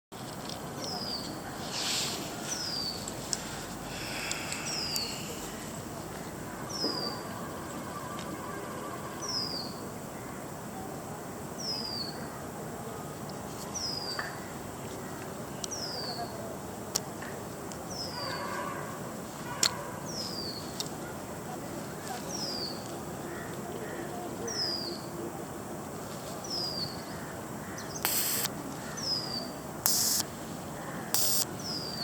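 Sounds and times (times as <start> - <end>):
outdoor background noise: 0.0 - 32.0
faint clicks: 4.2 - 5.1.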